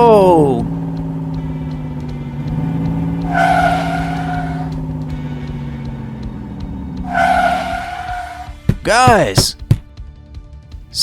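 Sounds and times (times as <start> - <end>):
tires screeching skid: 1.1 - 8.7
engine drone sound effect: 1.7 - 8.6.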